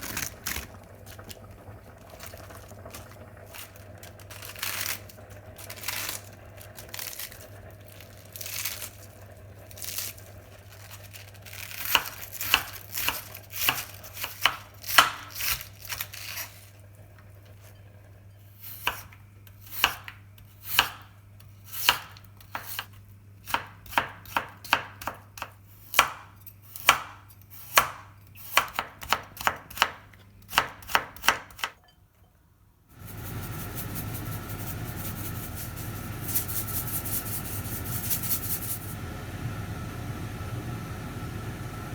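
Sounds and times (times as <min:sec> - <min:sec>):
knife chopping on cutting board: 0:11.8 - 0:15.6, 0:19.7 - 0:21.0, 0:23.5 - 0:31.7
steady hiss: 0:33.0 - 0:39.0.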